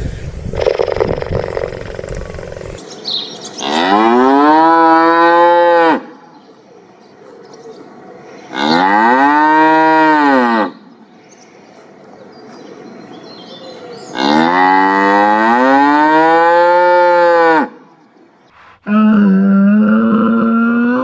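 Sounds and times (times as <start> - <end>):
cows mooing: 3.6 - 6.1, 8.5 - 10.8, 14.1 - 17.8.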